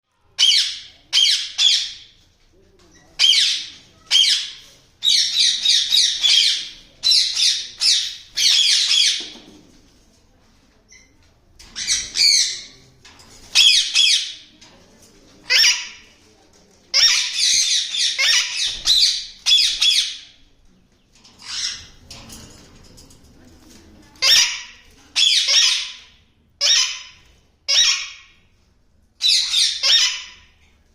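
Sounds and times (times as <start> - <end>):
parakeet squawking: 26.6 - 28.2, 29.2 - 30.4.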